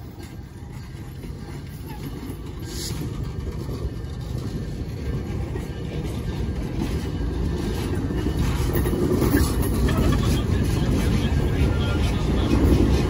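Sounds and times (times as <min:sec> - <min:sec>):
train cars rolling past: 0:00.0 - 0:13.0.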